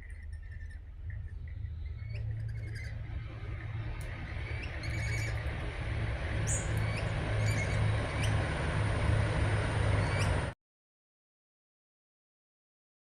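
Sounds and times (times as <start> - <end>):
birds giving high calls: 0.0 - 8.5, 9.9 - 10.5
steady low rumble: 0.0 - 10.6.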